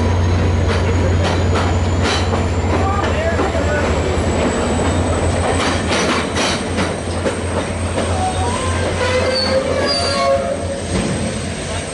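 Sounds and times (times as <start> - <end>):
train rumble and hum: 0.0 - 11.9
high squeals: 8.1 - 10.8.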